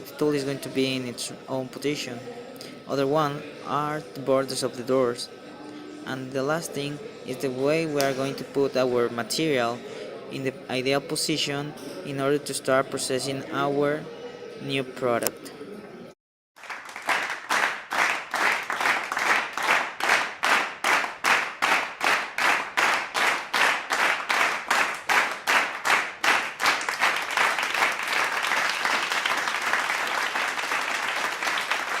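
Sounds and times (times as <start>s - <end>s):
continuous applause: 16.6s - 32.0s
people clapping in unison: 16.6s - 32.0s.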